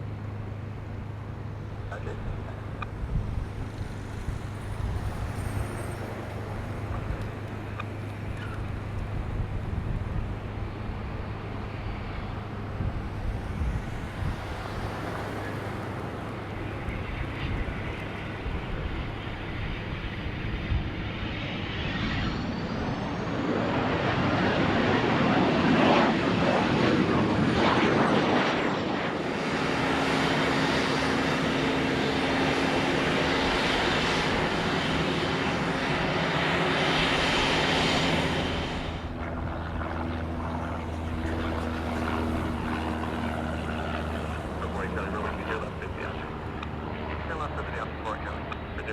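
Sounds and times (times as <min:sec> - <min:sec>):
airplane engine hum: 0:00.0 - 0:48.9
thin high whine: 0:03.7 - 0:08.7.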